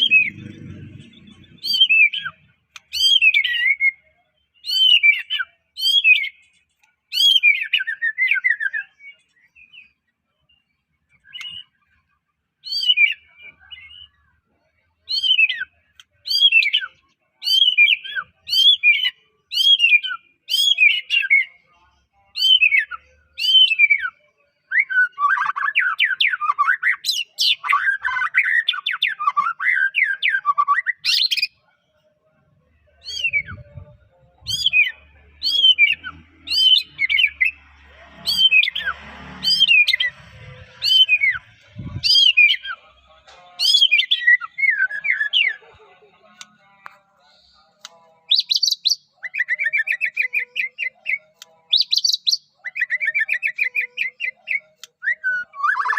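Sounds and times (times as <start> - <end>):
bird singing whistled phrases: 1.2 - 6.4, 7.1 - 9.9, 11.2 - 11.8, 12.6 - 14.2, 15.1 - 21.6, 22.4 - 31.5, 33.0 - 33.8, 34.5 - 37.6, 43.6 - 45.6, 48.3 - 55.9.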